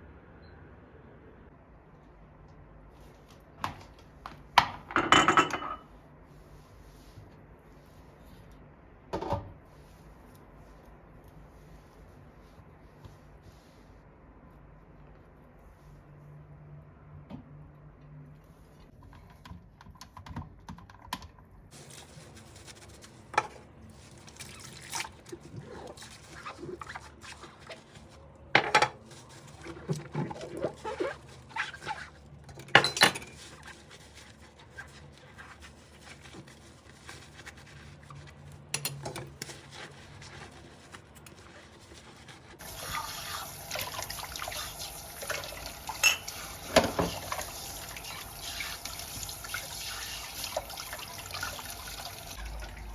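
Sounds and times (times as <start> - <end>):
dishes clinking: 4.6 - 5.9, 45.9 - 47.3
tap water running: 42.6 - 52.9.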